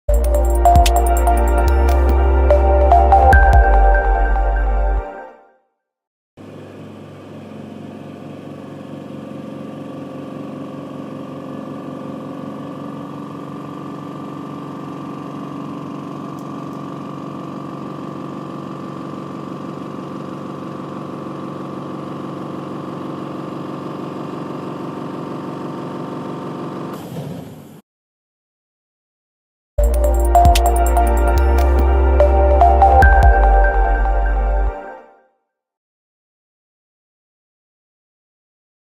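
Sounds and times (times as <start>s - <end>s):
air compressor humming: 10.4s - 26.2s.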